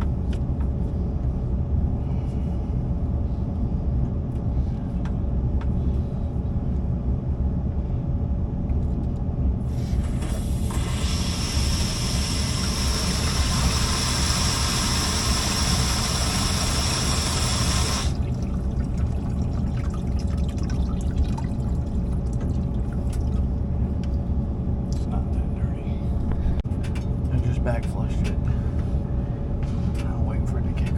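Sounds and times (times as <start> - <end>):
low rumble: 0.0 - 30.9
water rushing through pipes: 9.8 - 23.5.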